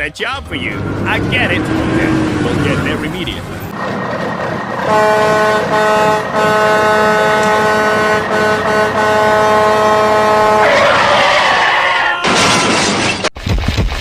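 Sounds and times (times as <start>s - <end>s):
vehicle air horn blaring: 4.8s - 10.8s.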